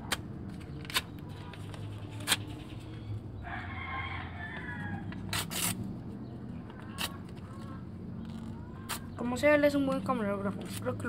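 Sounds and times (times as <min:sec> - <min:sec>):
rooster crowing: 0:03.4 - 0:05.3.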